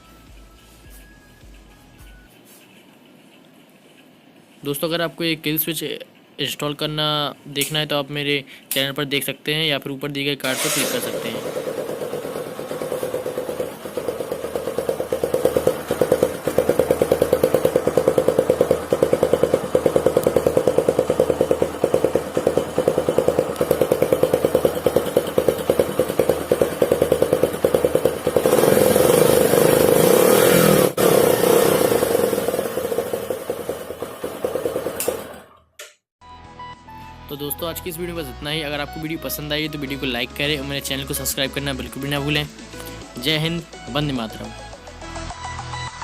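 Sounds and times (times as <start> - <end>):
motorcycle engine idling and revving: 10.5 - 35.6.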